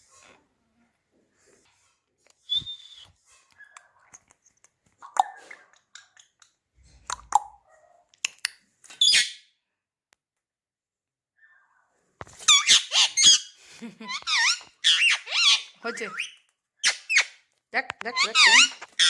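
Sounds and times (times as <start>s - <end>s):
parrot whistles and chirps: 2.4s - 3.8s
parrot harsh screech: 18.2s - 19.0s.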